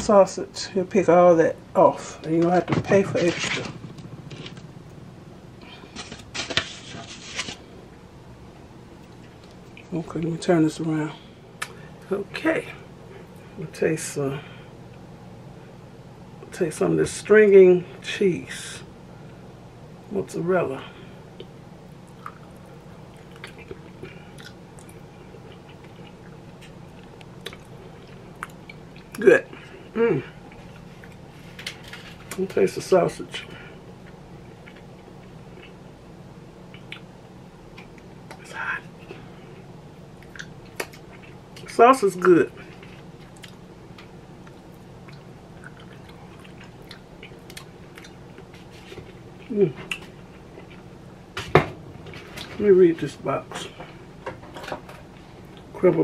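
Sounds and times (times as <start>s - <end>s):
low room hum: 0.0s - 56.0s
person chewing with mouth clicks: 21.4s - 29.2s, 36.7s - 37.1s, 40.2s - 41.4s, 42.7s - 50.8s.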